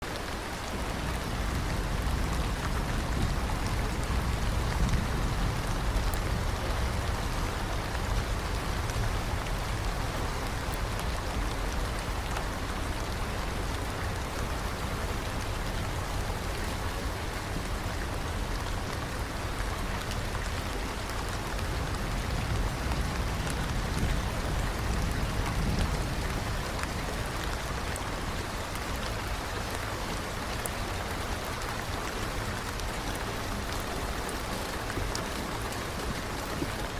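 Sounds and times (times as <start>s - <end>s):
steady rain falling: 0.0s - 36.9s
low rumble: 0.8s - 10.1s.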